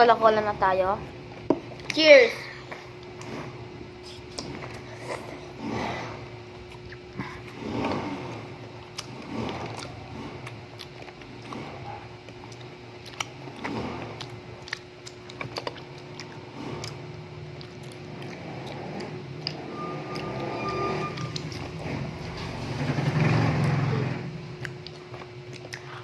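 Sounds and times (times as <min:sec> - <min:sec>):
faint steady hum: 0:00.0 - 0:26.0
people chewing gummy candies: 0:02.6 - 0:20.5, 0:21.2 - 0:23.9, 0:24.5 - 0:26.0
brief high tone: 0:19.6 - 0:21.5
wet mouth clicks: 0:24.6 - 0:26.0.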